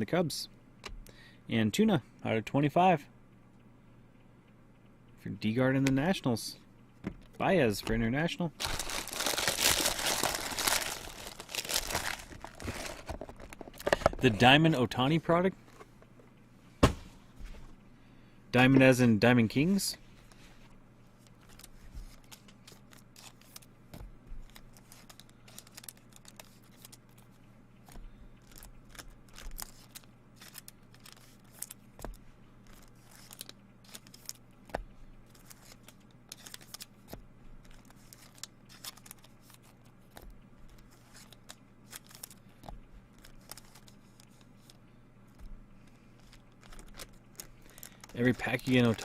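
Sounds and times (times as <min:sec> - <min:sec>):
faint steady hum: 0:00.0 - 0:49.0
trading cards clicking and rustling: 0:07.2 - 0:16.2, 0:21.2 - 0:49.0.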